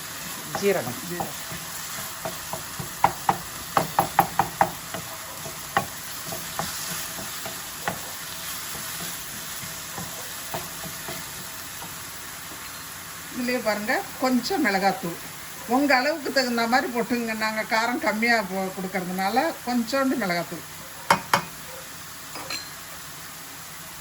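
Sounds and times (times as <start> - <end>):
onions sizzling in oil: 0.0 - 24.0
spatula knocking against pan: 0.5 - 8.1, 8.7 - 12.6, 21.1 - 21.6.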